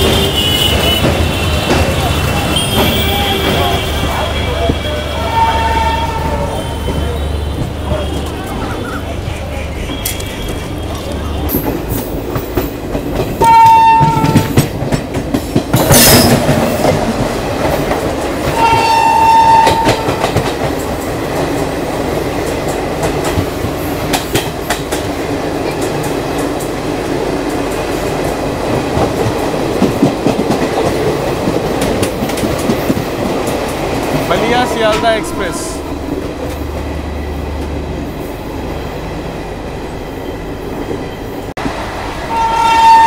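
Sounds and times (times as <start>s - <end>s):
coaches rumbling and clattering: 0.0s - 5.1s
train horn blasts: 0.0s - 8.4s, 13.4s - 14.7s, 18.5s - 20.4s, 42.3s - 43.0s
passing train rushing: 0.0s - 43.0s.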